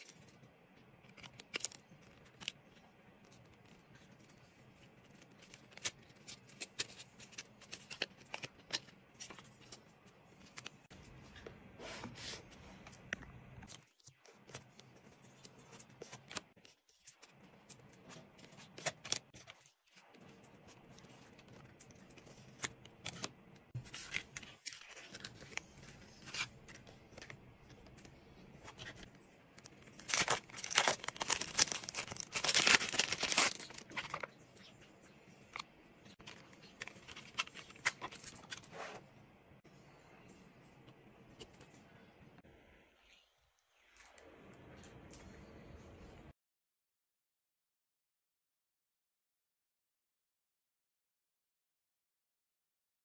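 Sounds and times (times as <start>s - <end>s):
paper rustling: 13.6s - 34.4s
paper tearing: 30.0s - 34.0s.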